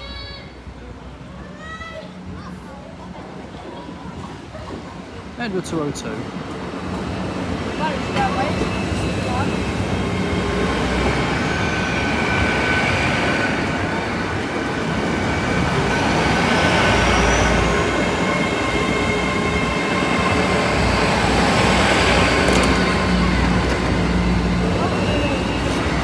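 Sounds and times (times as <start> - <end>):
train wheels rumbling: 2.8 - 26.0.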